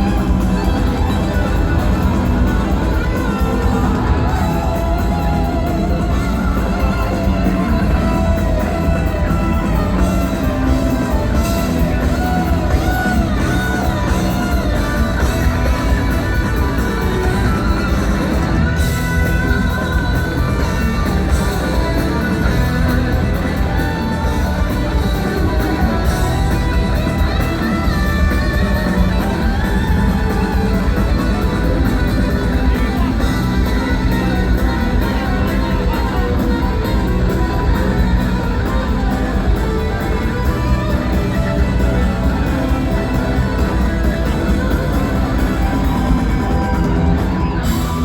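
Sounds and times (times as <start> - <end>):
electric guitar: 0.0 - 48.0
live rock band playing: 0.0 - 48.0.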